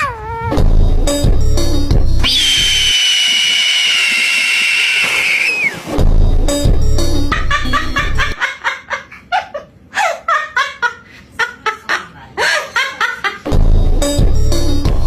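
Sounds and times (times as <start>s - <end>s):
background music with a beat: 0.6s - 2.2s, 6.0s - 8.3s, 13.5s - 15.0s.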